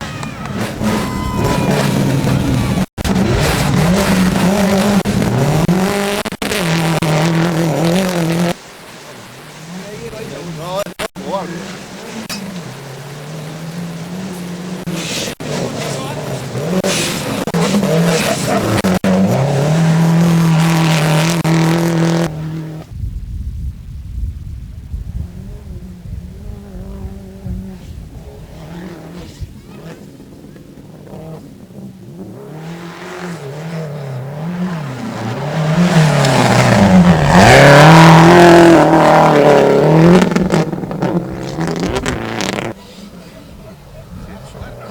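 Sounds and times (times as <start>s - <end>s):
rally car engine accelerating: 0.0s - 8.6s, 9.3s - 22.9s, 25.3s - 43.3s.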